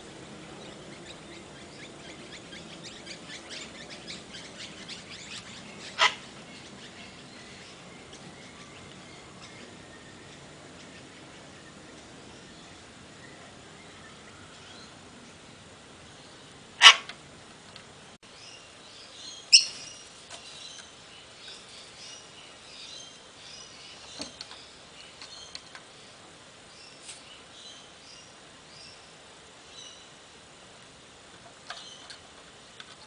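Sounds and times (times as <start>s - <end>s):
soft bird chirps and chatter: 0.4s - 17.0s, 18.3s - 30.2s, 31.6s - 33.0s
parrot squawking: 5.8s - 6.3s, 16.8s - 17.1s.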